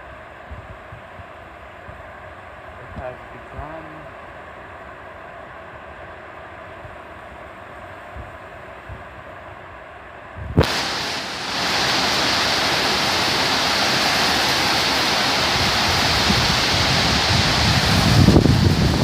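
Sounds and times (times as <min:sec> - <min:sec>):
wind buffeting microphone: 0:10.4 - 0:19.0
heavy rain pouring: 0:10.6 - 0:19.0.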